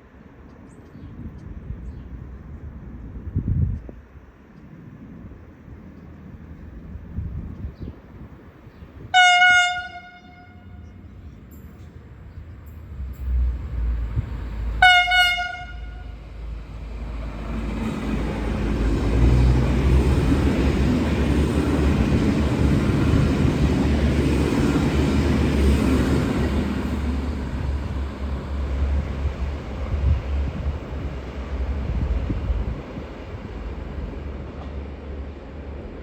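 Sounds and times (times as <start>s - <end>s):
train engine and wheel noise: 0.0s - 36.0s
train horn toot: 9.1s - 11.0s, 14.8s - 16.2s.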